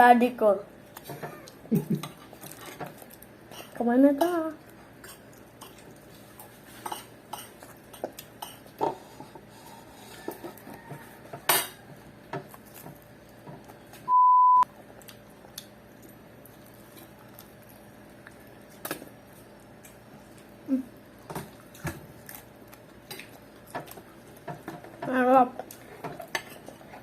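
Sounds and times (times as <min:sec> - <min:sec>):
electronic beep: 0:14.1 - 0:14.6.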